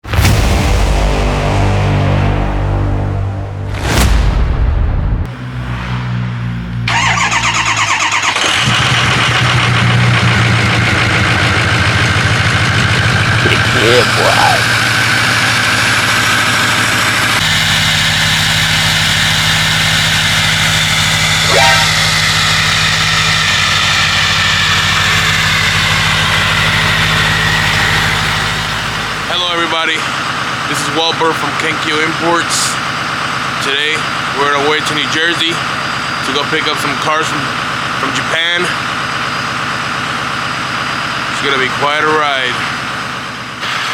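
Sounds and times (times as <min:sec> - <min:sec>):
engine idling: 0:06.5 - 0:43.9
engine starter cranking: 0:06.9 - 0:13.3.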